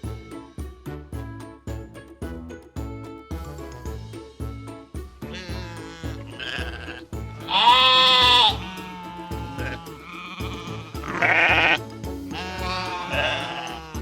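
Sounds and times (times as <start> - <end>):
light background music: 0.0 - 14.0
sheep bleating: 5.2 - 14.0.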